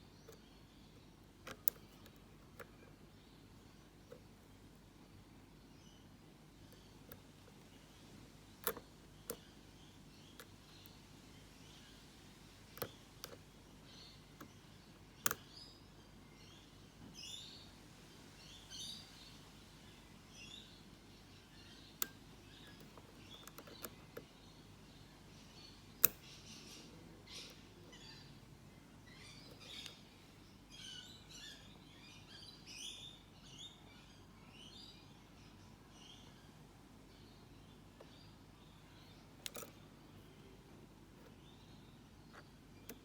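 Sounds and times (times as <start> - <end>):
faint high chirping: 0.0 - 43.0
lock pick clicks: 1.4 - 2.7, 8.6 - 9.5, 22.0 - 24.3, 26.0 - 26.2, 39.4 - 39.8.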